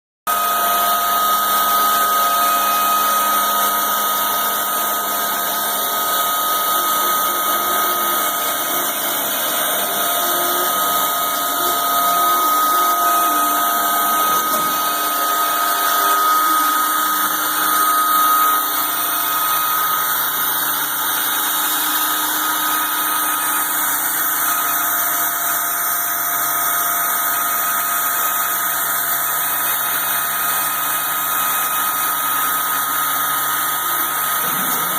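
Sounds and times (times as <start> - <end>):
spindle whine: 0.3 - 24.8
machine hum: 0.3 - 25.0
stepper motor tones: 0.3 - 34.9.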